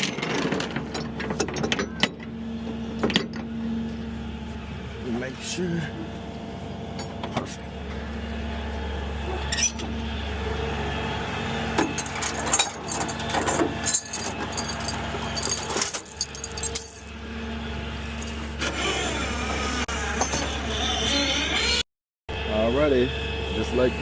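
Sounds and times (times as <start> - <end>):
clinking and rattling: 0.0 - 2.3, 12.0 - 17.2, 18.0 - 18.7
truck engine idling: 1.9 - 15.8.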